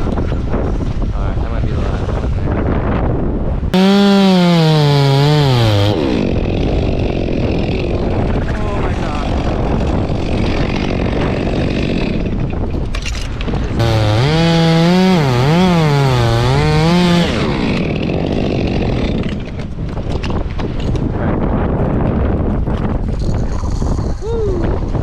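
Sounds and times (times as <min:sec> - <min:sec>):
wind: 0:00.0 - 0:25.0
chainsaw engine revving: 0:03.8 - 0:08.0, 0:13.8 - 0:19.2.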